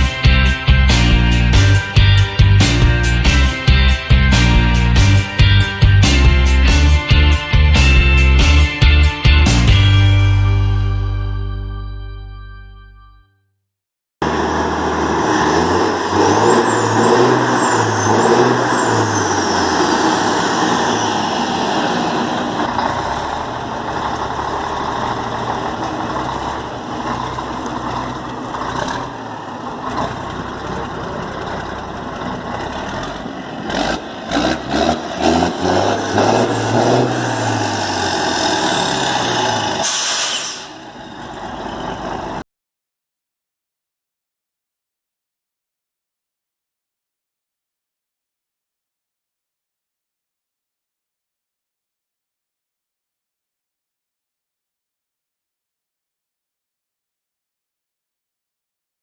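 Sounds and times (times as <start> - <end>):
diesel truck engine revving: 0.0 - 11.6, 14.2 - 42.4
air hiss: 39.8 - 40.8.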